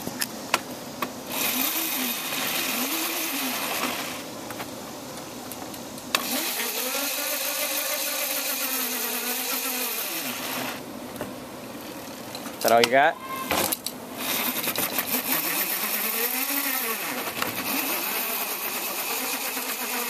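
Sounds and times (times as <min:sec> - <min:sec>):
dirt bike engine revving: 0:01.3 - 0:04.3, 0:14.2 - 0:20.0.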